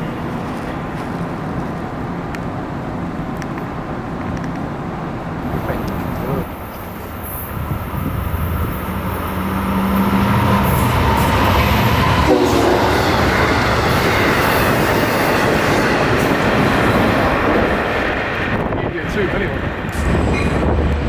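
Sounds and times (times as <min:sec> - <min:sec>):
train passing: 0:00.0 - 0:21.0.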